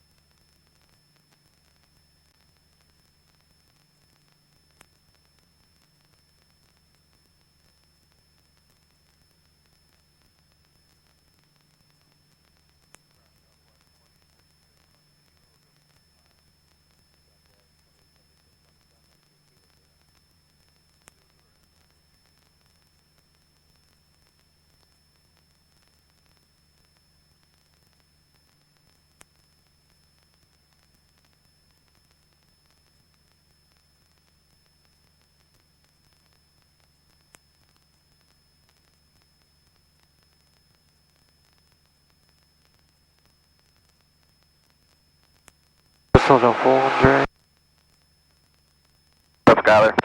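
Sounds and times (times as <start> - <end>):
faint hiss and low hum: 0.0 - 45.2, 46.2 - 47.3, 49.5 - 50.0
faint electrical hiss and hum: 46.2 - 47.3, 49.5 - 50.0
high-pitched whine: 46.2 - 47.3.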